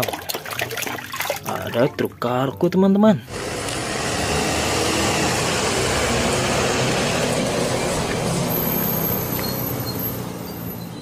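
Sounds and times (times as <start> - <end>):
bus engine under load: 3.3 - 11.0.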